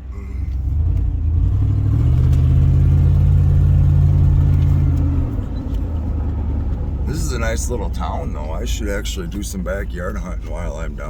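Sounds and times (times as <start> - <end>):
vehicle engine droning: 0.0 - 11.0.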